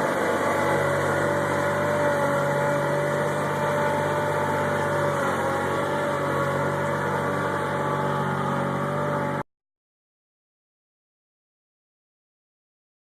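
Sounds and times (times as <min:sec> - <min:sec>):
tractor engine running: 0:00.0 - 0:09.4.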